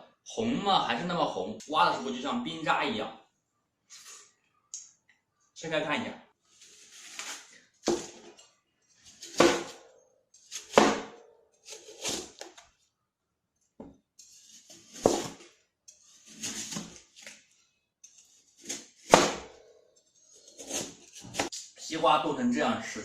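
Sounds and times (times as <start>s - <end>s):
knife crunching into frozen watermelon: 11.7s - 12.6s.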